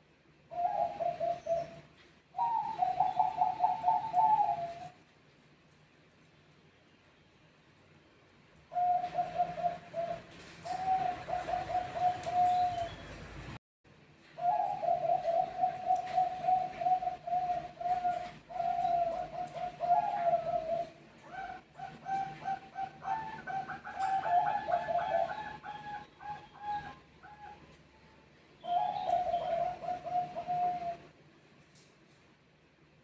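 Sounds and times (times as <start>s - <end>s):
doves cooing: 0.5s - 5.0s, 8.7s - 13.4s, 14.4s - 27.8s, 28.6s - 31.2s.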